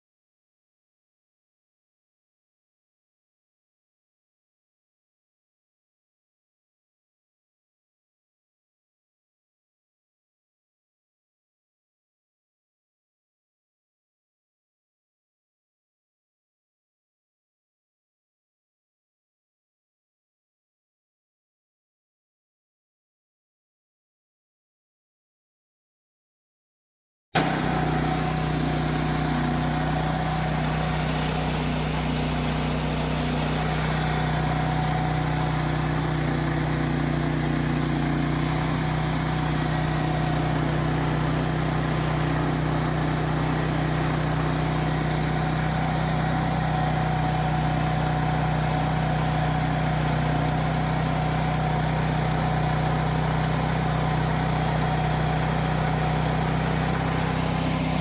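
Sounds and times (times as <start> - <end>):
small gasoline engine running: 27.4 - 58.0.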